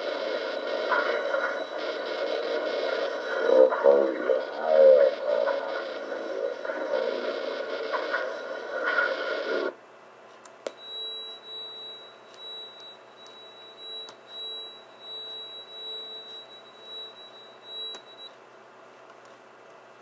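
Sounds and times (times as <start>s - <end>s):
low pulsing hum: 0.0s - 9.7s
high whine over speaker: 0.0s - 9.8s, 10.7s - 18.4s
click: 12.3s - 13.4s, 17.9s - 18.1s, 19.1s - 19.8s.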